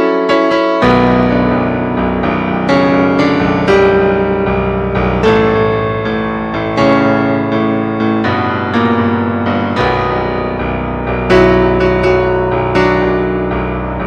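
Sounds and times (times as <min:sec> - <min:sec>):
piano chords: 0:00.0 - 0:14.0.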